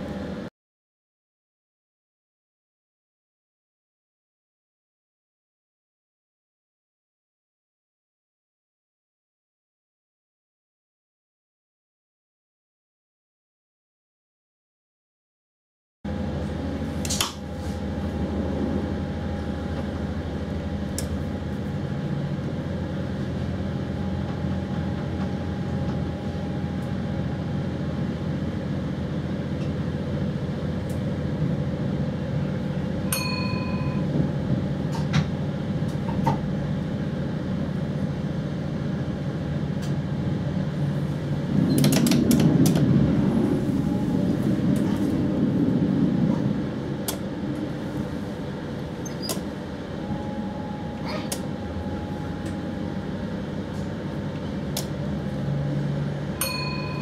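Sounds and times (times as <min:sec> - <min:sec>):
electric train running hum: 0:00.0 - 0:00.5, 0:16.1 - 0:57.0
faint whine: 0:39.8 - 0:57.0.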